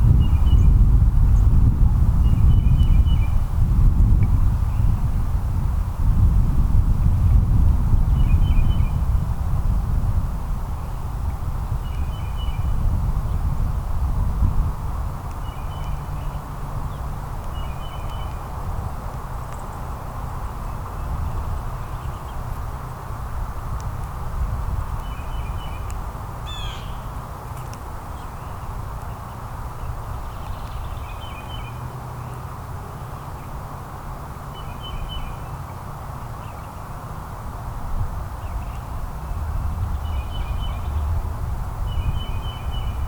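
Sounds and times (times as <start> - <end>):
low outdoor rumble: 0.0 - 43.0
bird chirping: 26.5 - 27.1, 39.9 - 41.1, 41.9 - 43.0.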